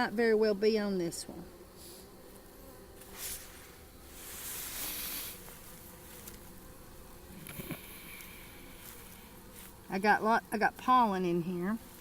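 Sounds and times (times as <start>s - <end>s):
honeybees buzzing: 0.0s - 12.0s
hiss of noise: 3.0s - 5.7s.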